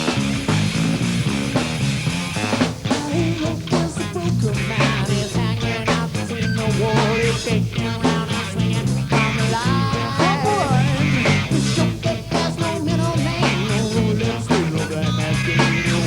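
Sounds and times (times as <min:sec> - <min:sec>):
drum hits: 0:00.0 - 0:16.0
repeating bass riff: 0:00.0 - 0:16.0
wavering lead melody: 0:05.7 - 0:12.2.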